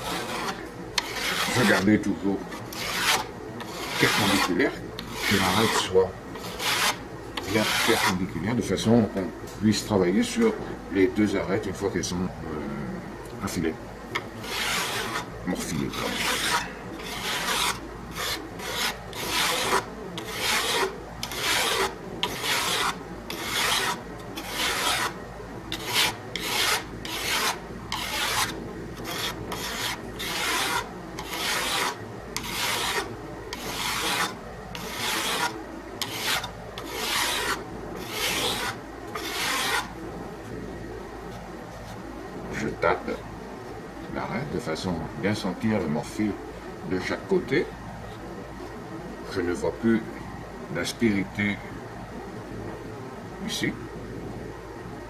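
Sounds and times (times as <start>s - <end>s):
file rasping on steel: 0.0s - 1.9s, 2.5s - 8.2s, 14.2s - 39.9s.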